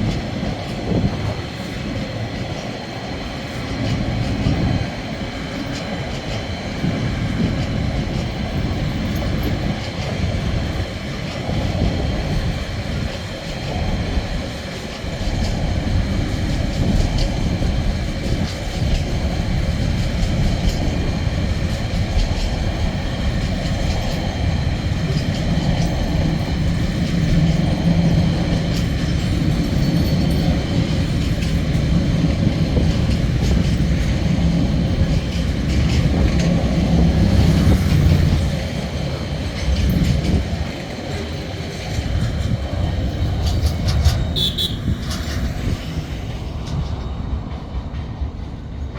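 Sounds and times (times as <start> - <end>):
train wheels rumbling and clattering: 0.0 - 48.9.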